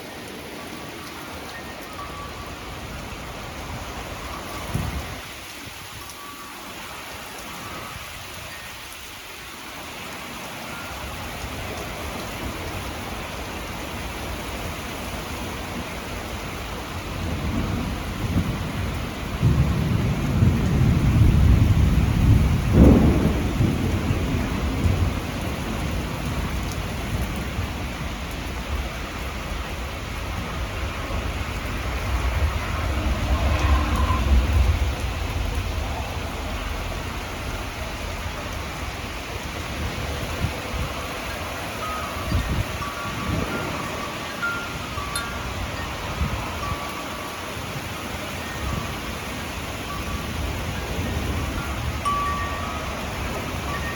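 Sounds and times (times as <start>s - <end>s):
rain falling: 0.0s - 53.9s
low rumble of thunder: 15.6s - 44.2s
sharp thunder crack: 19.4s - 25.2s.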